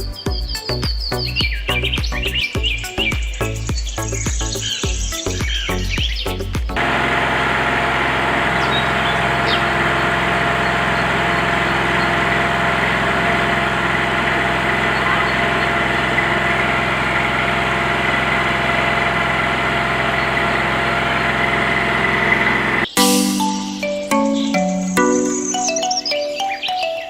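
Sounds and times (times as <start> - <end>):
small engine idling: 6.8 - 22.9
background music: 22.9 - 27.0.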